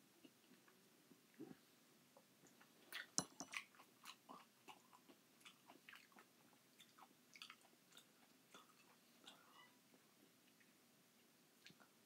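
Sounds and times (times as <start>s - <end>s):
person chewing food: 2.4s - 10.8s.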